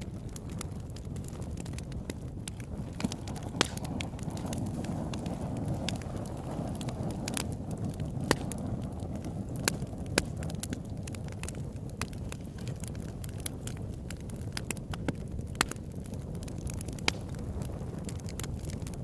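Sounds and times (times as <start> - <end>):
burning wood crackling and popping: 0.0 - 19.0
campfire flames rumbling: 0.0 - 19.0.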